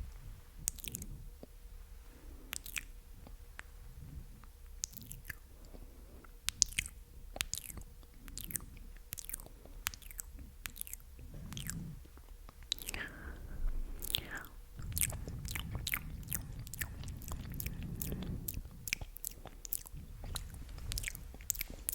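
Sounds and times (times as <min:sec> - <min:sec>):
wet mouth clicks and pops: 0:00.6 - 0:01.5, 0:02.5 - 0:03.7, 0:04.8 - 0:05.4, 0:06.4 - 0:13.1, 0:14.0 - 0:21.9.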